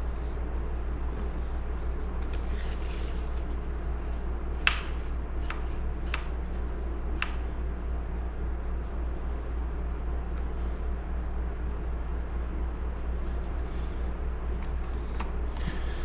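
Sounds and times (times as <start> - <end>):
steady low hum: 0.0 - 16.0
soft rustle: 1.2 - 4.0.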